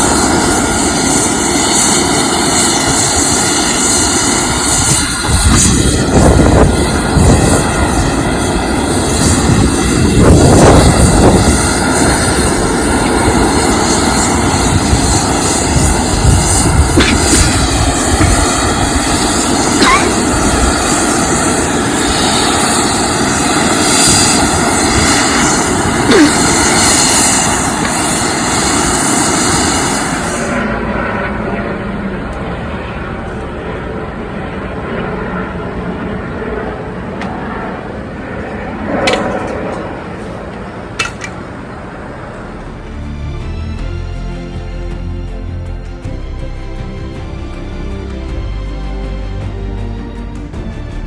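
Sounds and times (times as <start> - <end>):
turboprop aircraft engine drone: 0.0 - 51.0.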